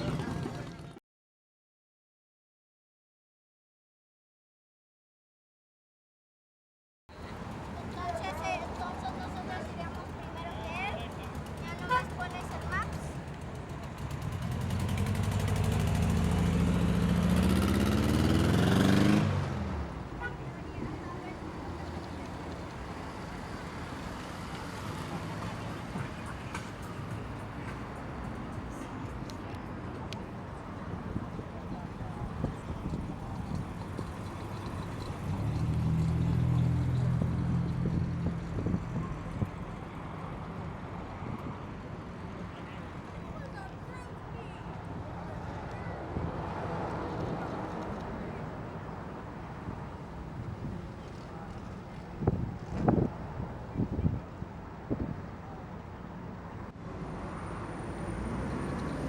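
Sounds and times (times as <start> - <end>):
car engine approaching: 7.3 - 39.9, 56.8 - 59.0
car engine running at low revs: 30.2 - 39.5.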